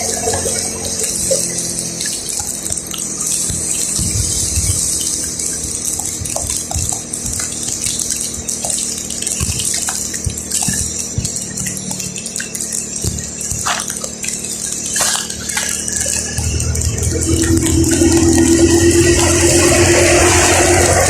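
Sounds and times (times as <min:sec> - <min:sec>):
low engine hum: 0:00.0 - 0:21.0
rain on wet road: 0:00.0 - 0:21.0
light thumps and clicks: 0:02.7 - 0:19.3.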